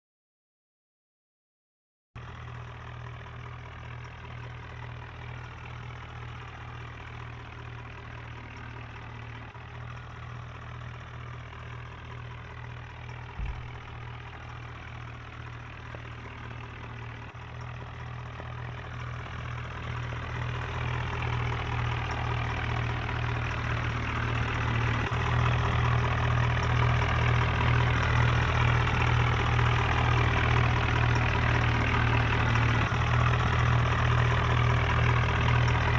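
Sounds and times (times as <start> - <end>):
tractor diesel engine running: 2.2 - 35.9
brief thump: 13.4 - 14.1.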